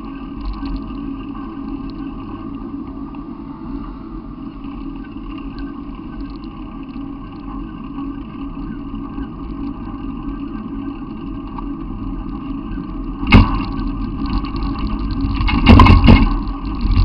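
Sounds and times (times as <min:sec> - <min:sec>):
vehicle engine humming: 0:00.0 - 0:16.7.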